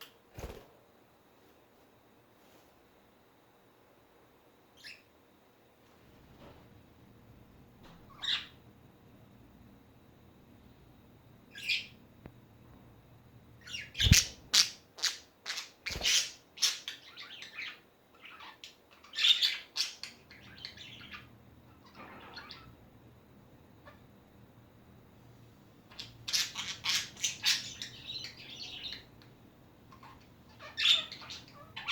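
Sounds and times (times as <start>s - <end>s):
budgerigars chirping and squawking: 13.7s - 22.7s, 25.9s - 29.1s, 29.9s - 31.9s.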